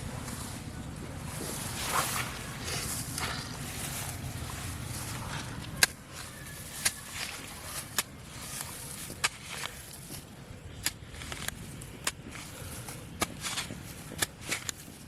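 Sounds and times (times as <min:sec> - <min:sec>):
footsteps in a field: 0:00.0 - 0:15.0.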